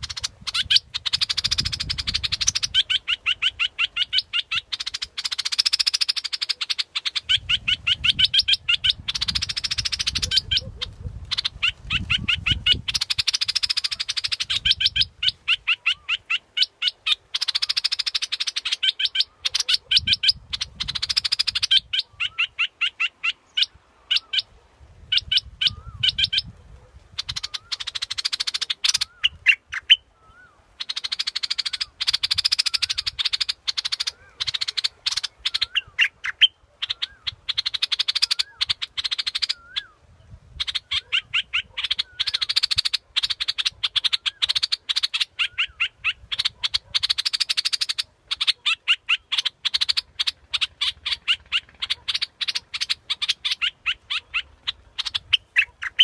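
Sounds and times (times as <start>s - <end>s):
bulbul song: 0.0s - 10.7s, 11.4s - 24.4s.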